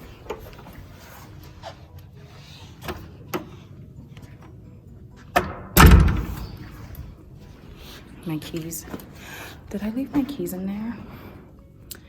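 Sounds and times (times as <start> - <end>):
door latch click: 5.4 - 6.4
door slamming shut: 5.4 - 6.7.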